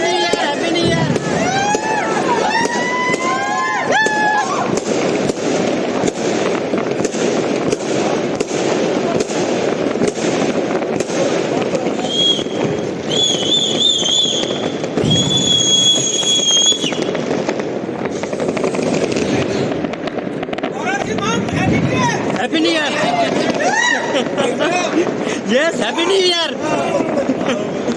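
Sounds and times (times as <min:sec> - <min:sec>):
fireworks crackling and popping: 0:00.0 - 0:27.9
high whistling fireworks: 0:00.0 - 0:27.9.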